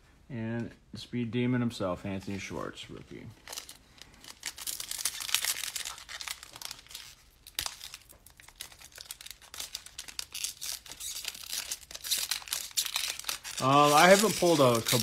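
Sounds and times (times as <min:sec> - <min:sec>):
foil wrapper crinkling and tearing: 0:03.3 - 0:15.0.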